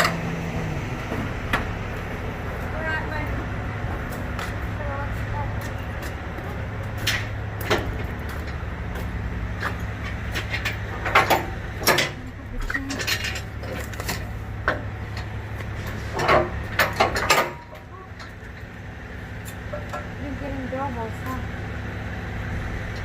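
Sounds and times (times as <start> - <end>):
diesel truck engine idling: 0.0 - 23.0
metal clanks and knocks: 7.0 - 8.6, 9.6 - 18.7, 19.4 - 20.2.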